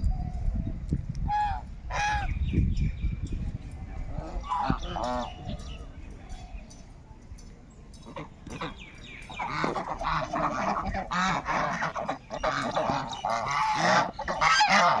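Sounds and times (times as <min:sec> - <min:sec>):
flock of birds calling: 0:03.9 - 0:06.9, 0:07.9 - 0:15.0.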